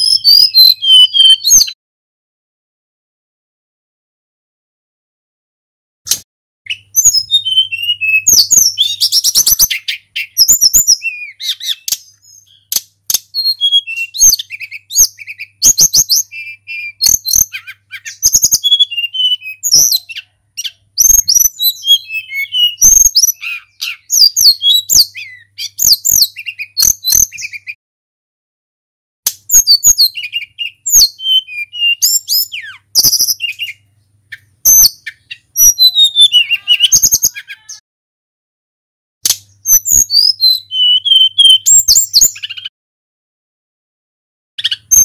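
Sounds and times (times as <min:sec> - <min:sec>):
bird singing high whistled notes: 0:00.0 - 0:01.8, 0:06.7 - 0:27.8, 0:29.5 - 0:37.8, 0:39.5 - 0:42.7, 0:44.6 - 0:45.0
sharp bird clicks: 0:06.1 - 0:07.2, 0:08.3 - 0:27.8, 0:29.3 - 0:31.3, 0:39.2 - 0:40.4.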